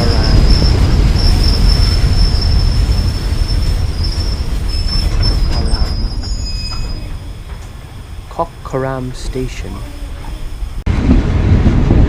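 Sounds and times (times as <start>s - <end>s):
train wheels squealing on rails: 0.0s - 8.6s
low rumble of train carriage: 0.0s - 12.0s.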